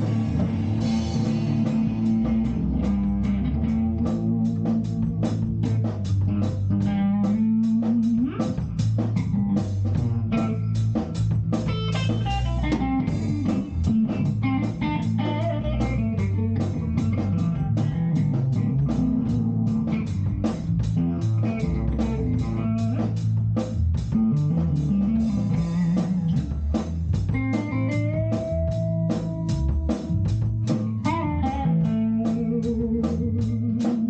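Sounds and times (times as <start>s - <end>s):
bass guitar: 0.0s - 34.0s
drum kit steady beat: 0.0s - 34.0s
electric guitar lines: 0.0s - 34.0s.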